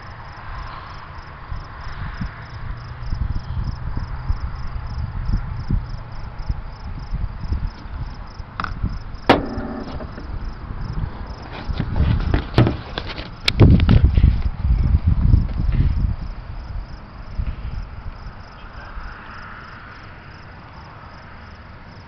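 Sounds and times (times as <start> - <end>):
wind buffeting microphone: 1.4 - 19.1
sharp knock: 9.3 - 10.4.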